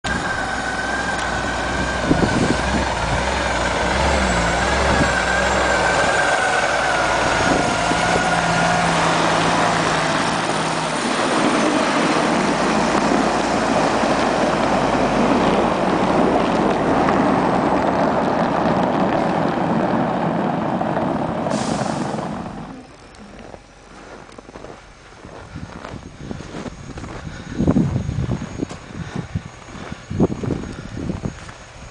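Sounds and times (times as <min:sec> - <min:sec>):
truck engine and machinery din: 0:00.0 - 0:31.9
high whine: 0:00.1 - 0:31.9
short hiss: 0:21.5 - 0:22.2.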